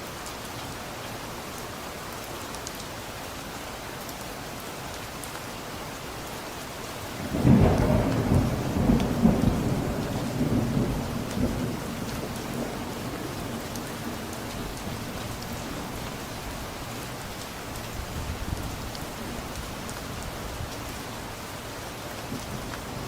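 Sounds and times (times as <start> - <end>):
steady rain falling: 0.0 - 23.0
thunder rumbling: 7.2 - 15.0.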